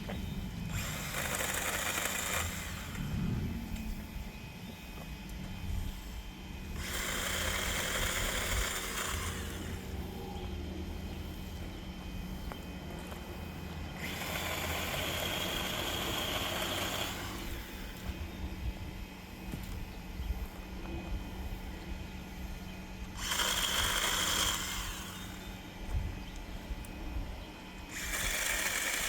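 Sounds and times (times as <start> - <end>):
electric chainsaw running: 0.0 - 20.7, 22.0 - 27.0, 27.6 - 29.0.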